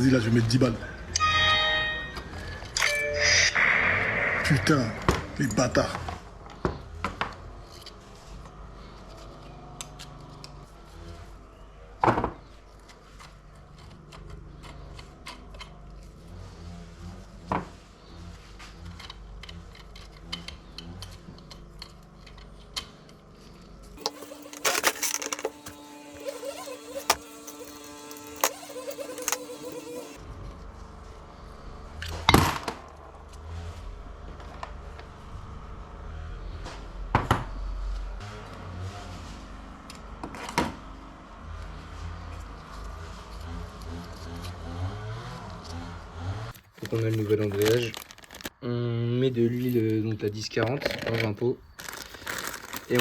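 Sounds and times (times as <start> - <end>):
low hum: 1.0 - 6.4
steady tone: 1.2 - 6.0.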